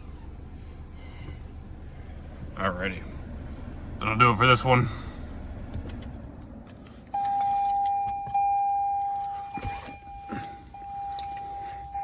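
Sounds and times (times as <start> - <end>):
car warning chime: 7.1 - 12.0
keys jangling: 7.2 - 8.3.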